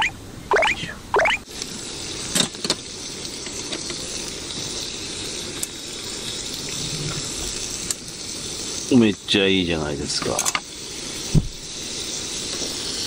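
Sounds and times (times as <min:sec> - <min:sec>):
short rising chirps: 0:00.0 - 0:01.4
sausages sizzling on griddle: 0:01.4 - 0:13.0.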